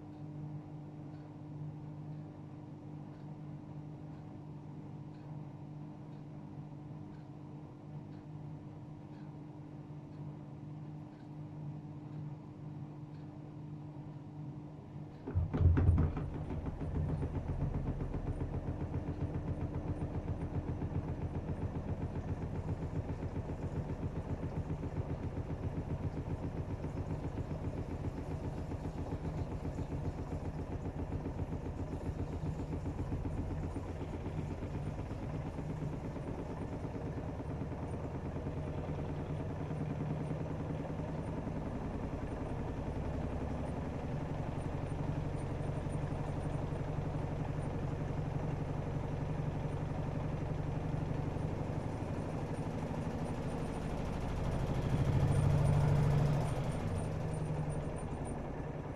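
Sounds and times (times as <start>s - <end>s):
washing machine pulsing hum: 0.0s - 58.9s
washing machine clatter: 15.2s - 58.9s.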